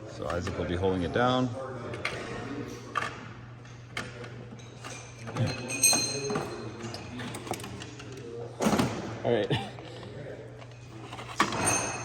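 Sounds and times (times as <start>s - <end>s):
metal tools clinking on metal: 4.6s - 7.8s, 11.4s - 12.0s.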